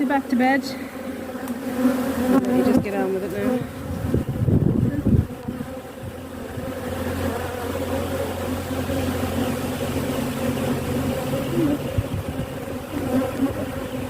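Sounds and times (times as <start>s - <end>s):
bees buzzing: 0.0s - 14.0s
low steady drone: 6.0s - 14.0s.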